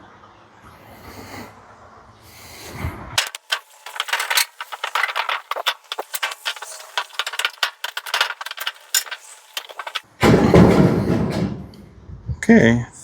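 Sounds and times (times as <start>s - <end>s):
clicks and metallic rattling: 3.2s - 10.2s.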